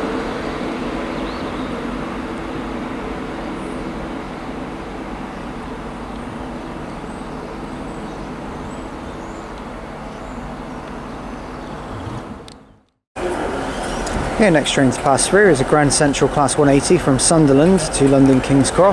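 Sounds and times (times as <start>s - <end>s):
electric train rumbling past: 0.0s - 12.6s, 13.2s - 18.9s.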